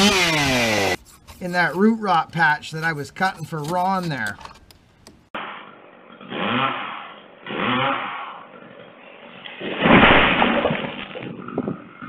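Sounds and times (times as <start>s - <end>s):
chainsaw engine revving: 0.0s - 1.0s, 6.2s - 8.6s
chainsaw starter cord whirs: 0.0s - 1.0s, 6.2s - 8.4s.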